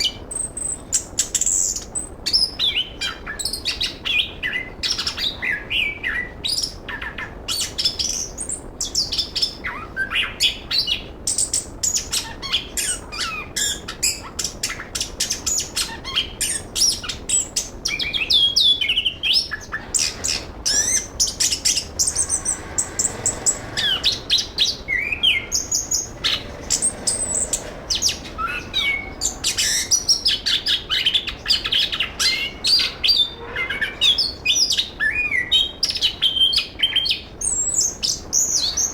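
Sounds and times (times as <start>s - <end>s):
thrush singing: 19.1s - 34.6s.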